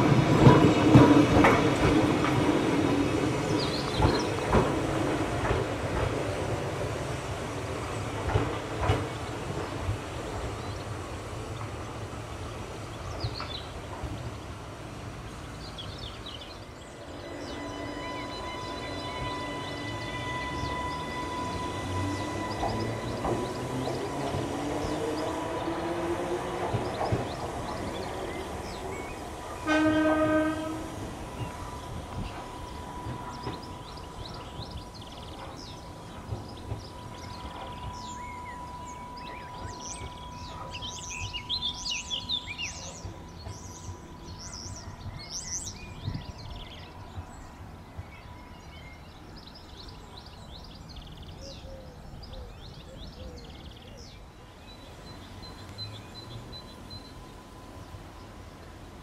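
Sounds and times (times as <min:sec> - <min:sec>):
train high whine: 0:00.0 - 0:59.0
train horn blast: 0:16.9 - 0:26.4, 0:29.5 - 0:35.2.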